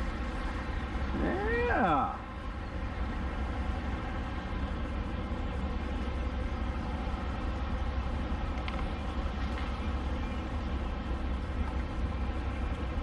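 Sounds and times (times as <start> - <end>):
faint clicks: 8.5 - 9.8.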